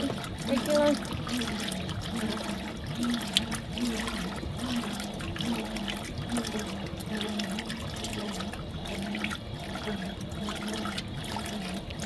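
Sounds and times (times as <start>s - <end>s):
washing machine motor hum: 0.0s - 12.0s
water sloshing in washing machine: 0.0s - 12.0s.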